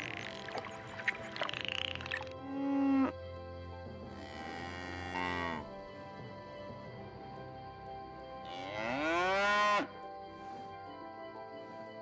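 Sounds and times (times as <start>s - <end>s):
cattle mooing: 4.2s - 5.7s.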